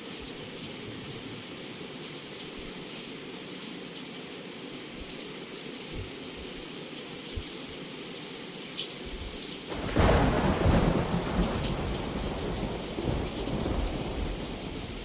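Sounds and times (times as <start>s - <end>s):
heavy rain: 0.0s - 15.0s
thunderclap and deep rumble: 9.1s - 15.0s.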